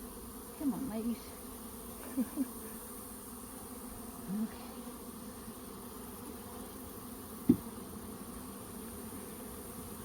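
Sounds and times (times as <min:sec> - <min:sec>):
bees buzzing: 0:00.0 - 0:10.0
sharp thump: 0:07.4 - 0:07.7.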